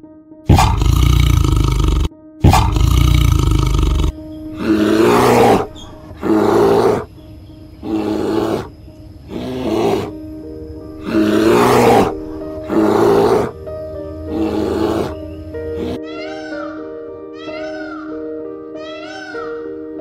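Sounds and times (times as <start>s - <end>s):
large animal roaring: 0.5s - 7.1s, 7.8s - 8.7s, 9.3s - 10.2s, 11.0s - 13.6s, 14.3s - 15.2s.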